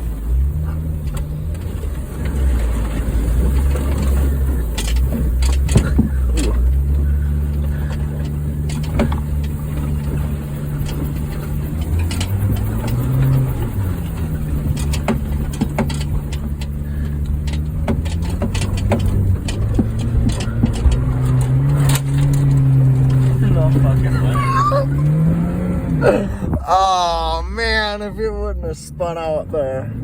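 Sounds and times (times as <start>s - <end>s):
car engine running under load: 0.0s - 30.0s
car knocking and rattling: 0.0s - 30.0s.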